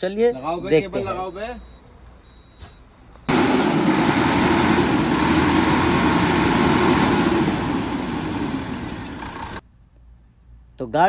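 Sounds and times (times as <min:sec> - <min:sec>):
bus diesel engine running: 0:03.0 - 0:09.6.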